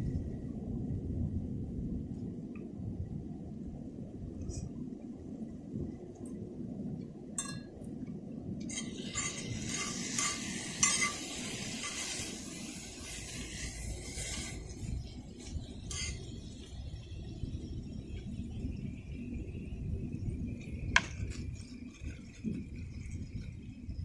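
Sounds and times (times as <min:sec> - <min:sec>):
metal utensils scraping a pan: 0:08.7 - 0:16.6
food sizzling: 0:08.7 - 0:18.2.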